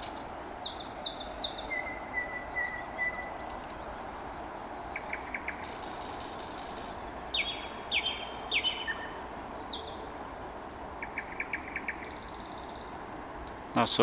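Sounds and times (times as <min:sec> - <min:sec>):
nightingale singing: 0:00.0 - 0:13.3
outdoor background hiss: 0:00.0 - 0:14.0.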